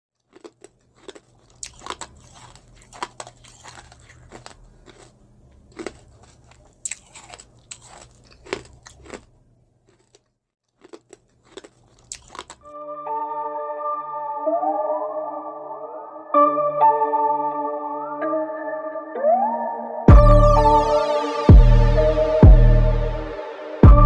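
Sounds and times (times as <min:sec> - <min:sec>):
crunchy chewing: 0:00.2 - 0:12.7.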